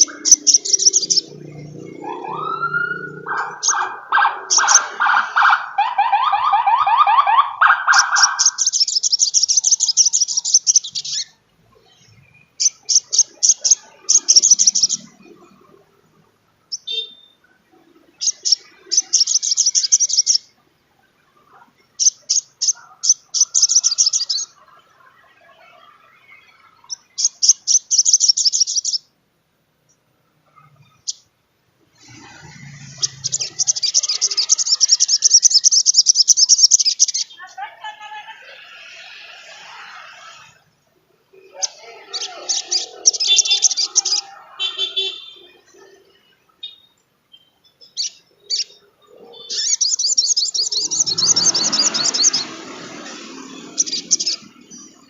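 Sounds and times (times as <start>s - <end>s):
sunbird trilling song: 0.0s - 5.0s, 7.9s - 15.6s, 18.1s - 20.5s, 21.9s - 24.6s, 25.4s - 29.1s, 32.0s - 37.4s, 41.5s - 55.0s.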